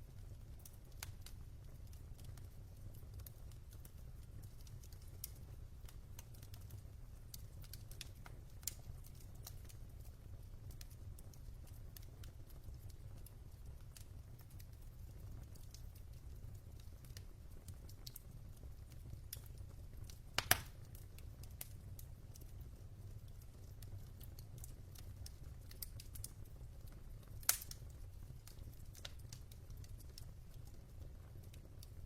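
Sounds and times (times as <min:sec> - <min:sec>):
wood fire crackling: 0:00.0 - 0:32.0
fire pops: 0:19.2 - 0:22.5, 0:23.6 - 0:30.8.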